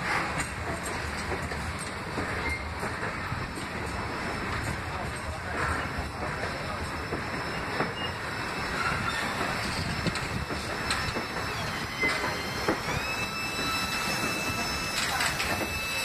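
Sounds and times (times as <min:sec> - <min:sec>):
steel train wheels rumbling: 0:00.0 - 0:16.0
wheels clicking over rail joints: 0:00.0 - 0:16.0
high wheel squeal: 0:02.2 - 0:03.0, 0:04.0 - 0:16.0.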